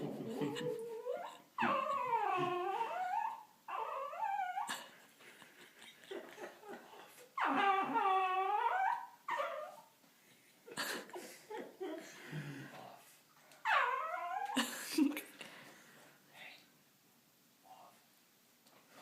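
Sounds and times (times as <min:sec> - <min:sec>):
small dog whining: 0:00.1 - 0:04.8, 0:07.0 - 0:09.9, 0:13.6 - 0:14.6.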